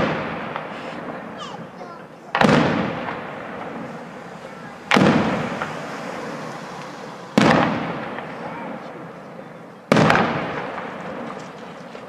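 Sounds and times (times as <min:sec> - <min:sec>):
firework shell bang: 0:02.3 - 0:03.9, 0:04.8 - 0:05.8, 0:07.4 - 0:08.5, 0:09.9 - 0:11.5.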